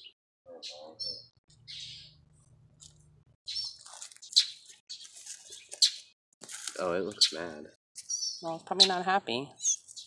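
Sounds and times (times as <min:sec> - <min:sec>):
bird chirping: 0:00.0 - 0:06.2, 0:07.0 - 0:10.0.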